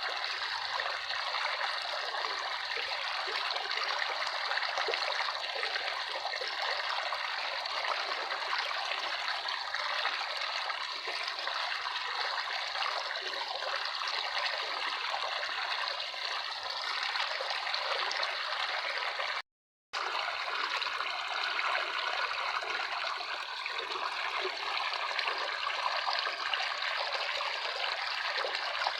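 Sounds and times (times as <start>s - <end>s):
running water trickling: 20.0s - 28.9s.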